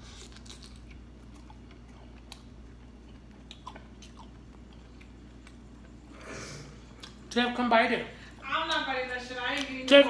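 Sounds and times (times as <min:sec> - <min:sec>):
faint chewing: 0:00.0 - 0:07.4
low room hum: 0:00.0 - 0:10.0.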